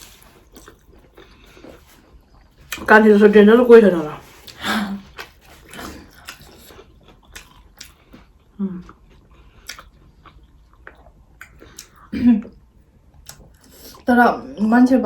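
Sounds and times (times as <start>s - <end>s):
person chewing food: 0.0s - 2.9s, 4.2s - 14.0s
wet mouth clicks and smacks: 9.6s - 10.0s.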